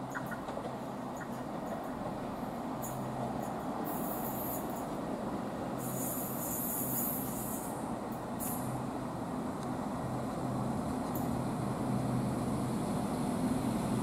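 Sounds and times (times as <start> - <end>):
diesel train engine hum: 0.0 - 14.0
high hissing from train wheels: 0.7 - 9.0.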